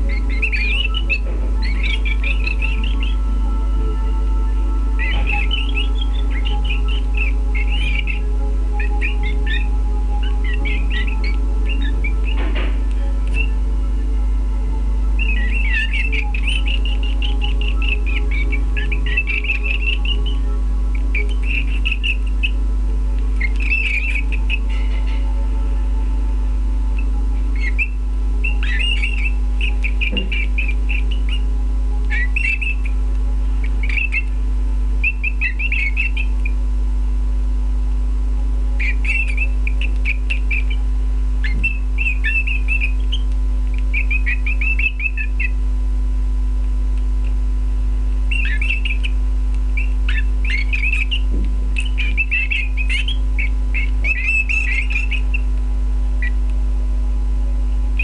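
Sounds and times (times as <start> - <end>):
canaries twittering: 0.0 - 26.2, 26.8 - 36.6, 38.8 - 45.6, 48.2 - 56.5
low hum: 0.0 - 58.0.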